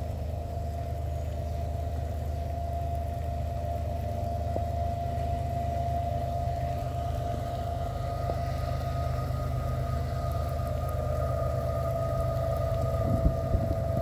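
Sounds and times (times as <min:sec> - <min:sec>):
diesel locomotive engine rumble: 0:00.0 - 0:14.0
high whine: 0:04.0 - 0:14.0.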